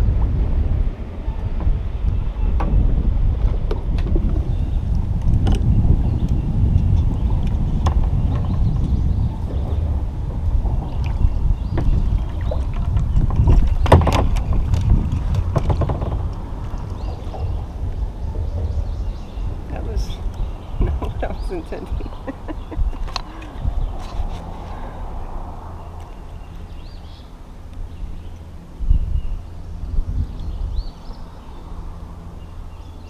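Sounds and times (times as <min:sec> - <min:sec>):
wind buffeting microphone: 0:00.0 - 0:33.0
sharp clicks and knocks: 0:03.4 - 0:18.9.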